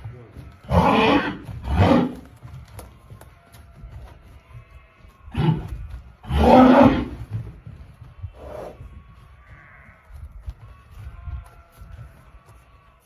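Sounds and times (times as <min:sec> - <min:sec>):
horse grunting: 0:00.6 - 0:02.3, 0:05.3 - 0:07.4.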